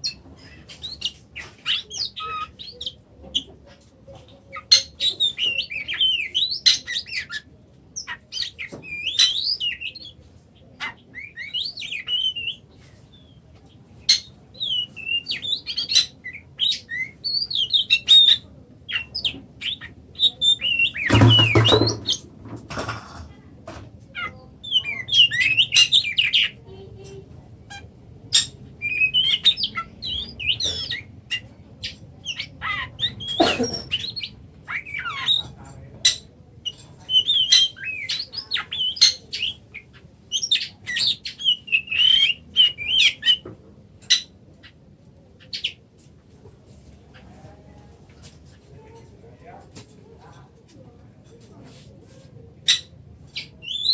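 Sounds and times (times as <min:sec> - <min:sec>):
bird singing: 0:04.3 - 0:13.4, 0:14.0 - 0:22.3, 0:24.2 - 0:26.8, 0:27.7 - 0:44.3, 0:52.7 - 0:53.9.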